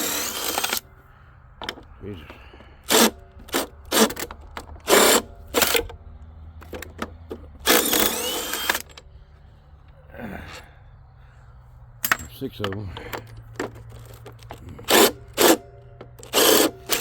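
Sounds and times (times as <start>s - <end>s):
metallic knocks and clicks: 12.0s - 17.0s.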